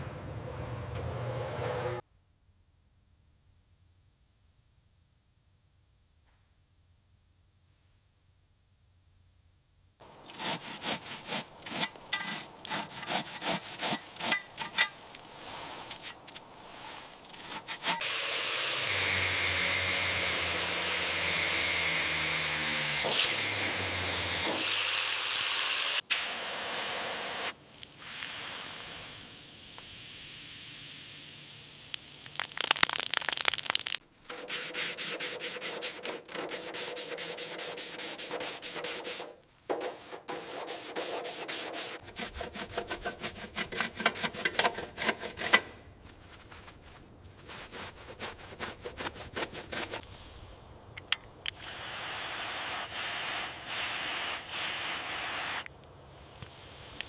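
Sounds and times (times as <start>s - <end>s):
low motor hum: 0.0s - 2.0s
rubbing: 10.0s - 18.0s, 34.2s - 50.0s
repeated scraping strokes: 10.0s - 24.6s, 34.3s - 50.3s
sanding on car parts: 10.1s - 24.8s, 34.3s - 45.8s, 47.4s - 50.0s, 51.6s - 55.7s.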